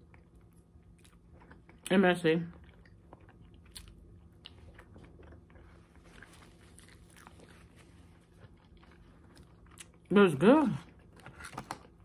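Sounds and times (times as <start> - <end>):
faint chewing: 0.0 - 1.9, 2.5 - 10.1.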